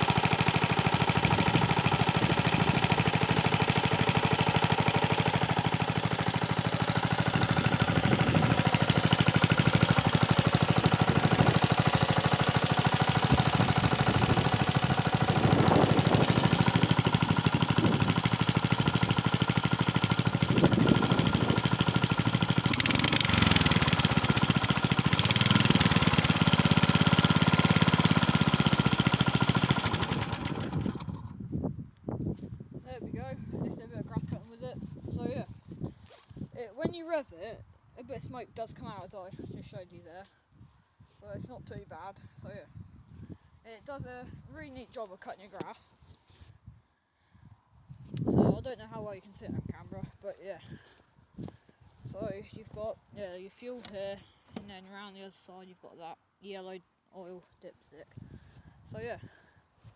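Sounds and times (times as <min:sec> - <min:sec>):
lawnmower engine cutting grass: 0:00.0 - 0:31.5, 0:53.6 - 0:55.5.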